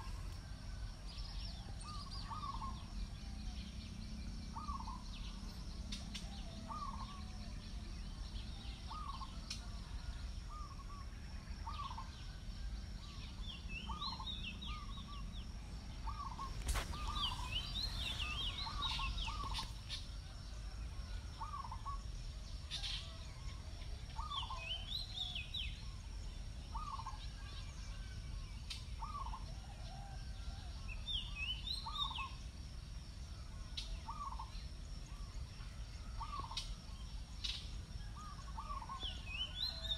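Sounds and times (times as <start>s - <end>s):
higher chattering bird calls: 16.0s - 19.9s.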